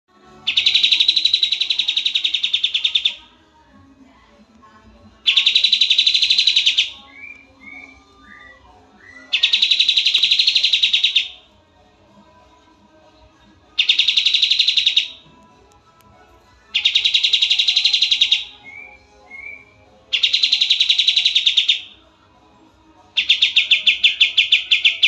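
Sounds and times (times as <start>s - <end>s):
bird whistled notes: 0.5s - 3.2s, 5.3s - 11.4s, 13.8s - 15.2s, 16.8s - 21.9s, 23.2s - 25.0s
songbird high trilling: 0.5s - 3.2s, 5.3s - 11.4s, 13.8s - 15.2s, 16.8s - 19.6s, 20.2s - 21.9s, 23.2s - 25.0s.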